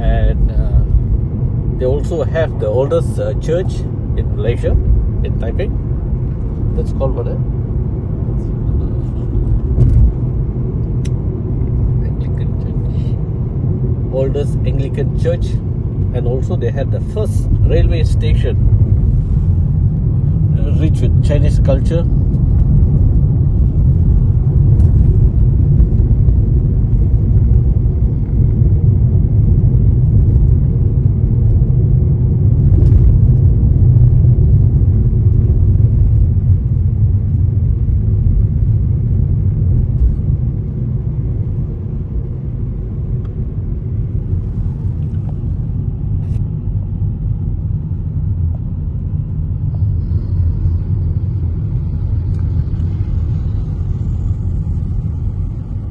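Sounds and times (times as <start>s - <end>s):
car road and engine rumble: 0.0s - 55.9s.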